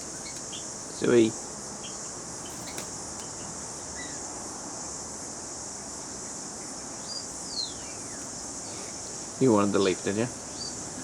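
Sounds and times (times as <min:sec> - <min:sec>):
faint bird chirps: 0:00.0 - 0:04.2, 0:06.1 - 0:09.2
insects droning: 0:00.0 - 0:11.0.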